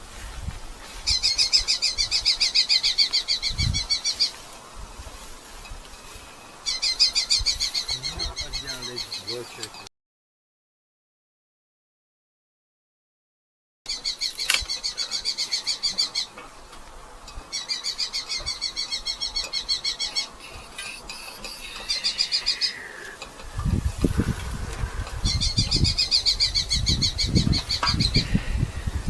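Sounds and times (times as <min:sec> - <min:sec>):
falcons chattering calls: 0:06.1 - 0:09.8, 0:13.9 - 0:16.4, 0:17.5 - 0:28.8.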